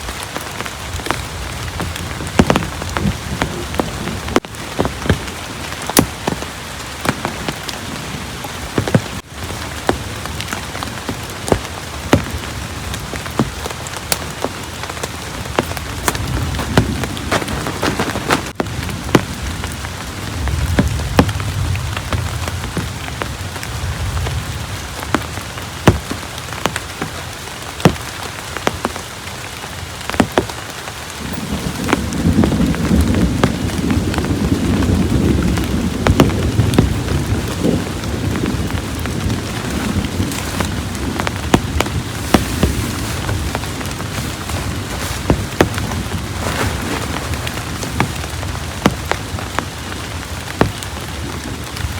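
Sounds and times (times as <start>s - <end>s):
heavy rain falling: 0.0s - 51.9s
low thunder rumbles: 31.2s - 51.9s.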